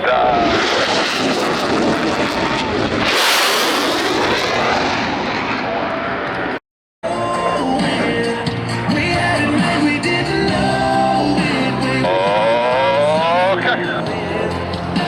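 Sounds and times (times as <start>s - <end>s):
jets flying past: 0.0s - 6.6s
music: 7.0s - 15.0s.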